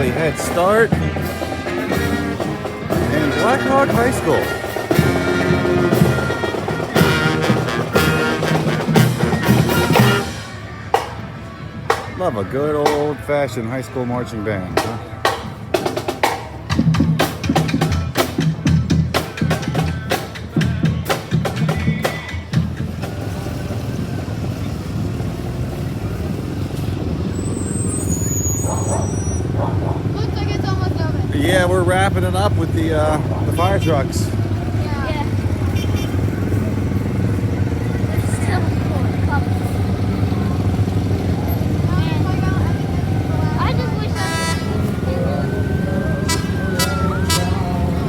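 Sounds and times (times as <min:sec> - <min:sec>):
brass chords: 0:00.0 - 0:11.1, 0:31.3 - 0:48.0
drum hits: 0:00.0 - 0:11.3, 0:14.8 - 0:23.8
vehicle engine rumble: 0:00.0 - 0:48.0.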